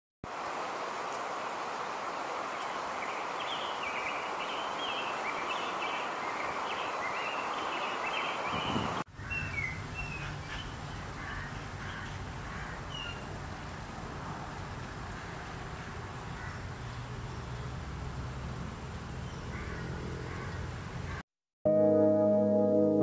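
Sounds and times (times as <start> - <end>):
birds chirping: 2.6 - 13.3.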